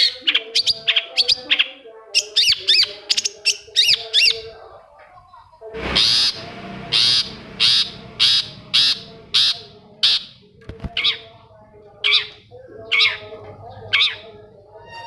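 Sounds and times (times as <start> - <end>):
shrike harsh rasping calls: 5.8 - 10.4.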